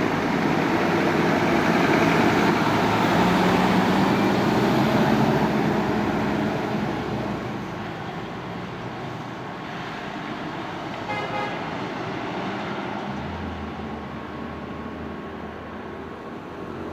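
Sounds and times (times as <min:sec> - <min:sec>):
fire engine diesel engine: 0:00.0 - 0:16.9
road traffic noise: 0:00.0 - 0:16.9.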